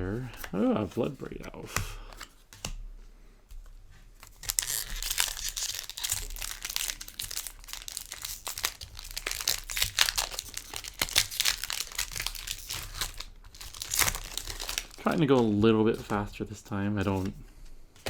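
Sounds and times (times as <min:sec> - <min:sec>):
foil wrapper crinkling: 0:04.2 - 0:17.4.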